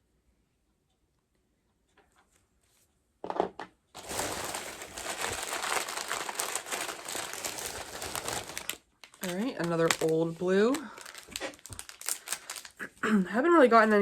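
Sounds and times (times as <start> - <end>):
foil bag crinkling: 4.0 - 13.0.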